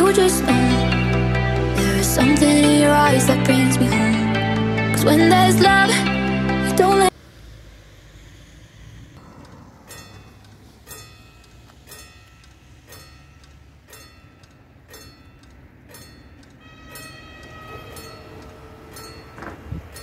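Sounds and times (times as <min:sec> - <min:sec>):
train approaching: 0:00.0 - 0:20.0
level crossing warning bell: 0:09.2 - 0:20.0.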